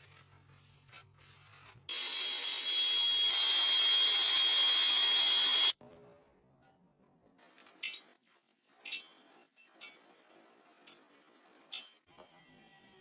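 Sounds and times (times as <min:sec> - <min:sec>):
small electric motor whining: 0:01.9 - 0:05.8.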